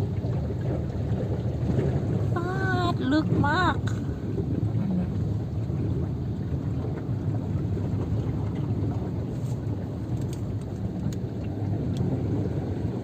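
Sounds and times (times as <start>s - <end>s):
car driving through flooded road: 0.0s - 13.0s
water washing around car: 0.0s - 13.0s.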